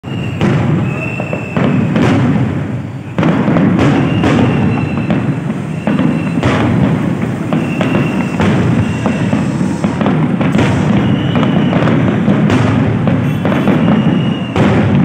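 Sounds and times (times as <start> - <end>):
fireworks bangs: 0.0 - 15.0
crackle of bursting shells: 3.1 - 15.0.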